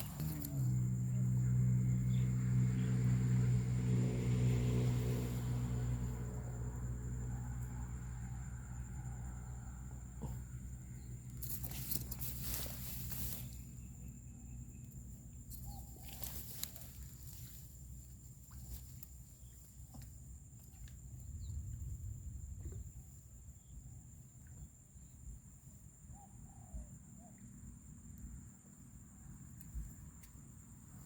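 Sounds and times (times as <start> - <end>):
low rumble: 20.9 - 23.4.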